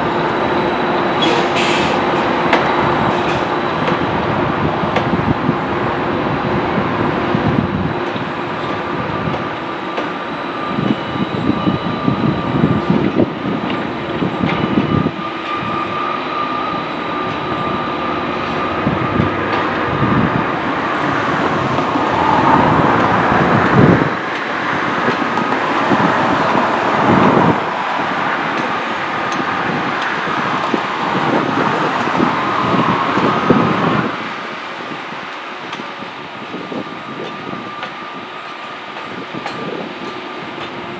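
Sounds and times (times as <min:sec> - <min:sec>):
steady high tone: 0:00.0 - 0:40.9
train wheels rumbling on rails: 0:00.0 - 0:40.9.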